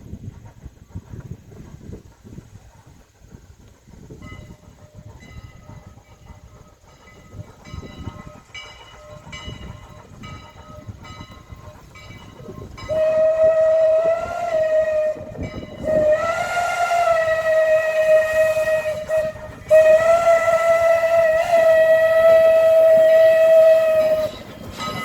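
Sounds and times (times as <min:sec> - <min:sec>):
passing train rumble: 0:00.0 - 0:25.0
steam locomotive whistle: 0:12.4 - 0:25.0.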